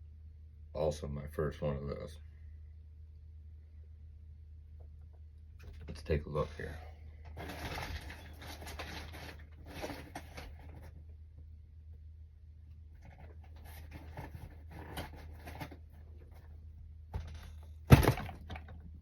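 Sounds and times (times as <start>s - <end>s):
steady low hum: 0.0s - 19.0s
cardboard box scraping and rustling: 7.4s - 11.0s, 13.0s - 16.0s.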